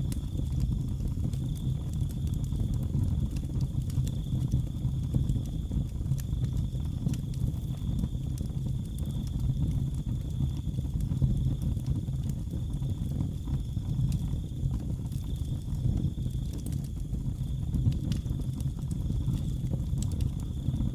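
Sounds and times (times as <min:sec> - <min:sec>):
wood fire crackling: 0:00.0 - 0:20.9.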